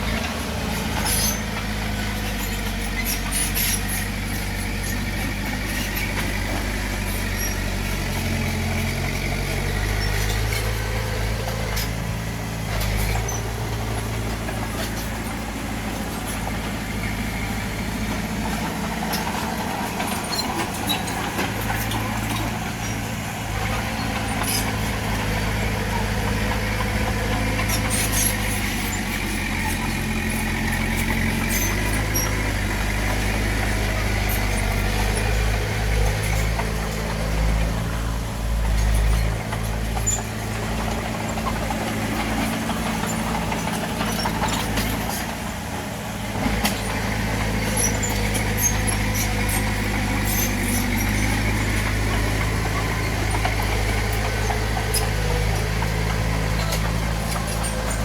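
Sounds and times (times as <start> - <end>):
bulldozer diesel engine rumbling: 0.0 - 58.0.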